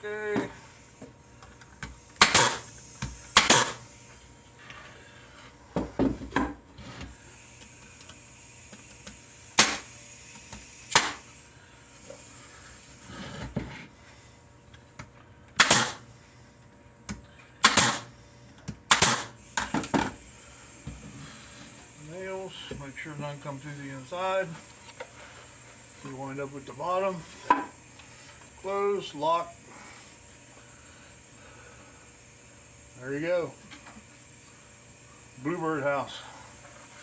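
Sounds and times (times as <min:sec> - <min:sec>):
nail gun shots into wood: 0:02.2 - 0:02.7, 0:03.3 - 0:03.8, 0:09.6 - 0:09.9, 0:10.9 - 0:11.2, 0:15.6 - 0:16.0, 0:17.6 - 0:18.1, 0:18.9 - 0:20.1.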